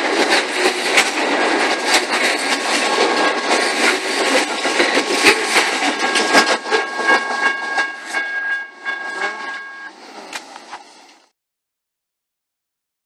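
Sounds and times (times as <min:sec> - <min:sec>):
train wheels clicking over rail joints: 0:00.0 - 0:11.3
thin high tone: 0:05.2 - 0:10.3.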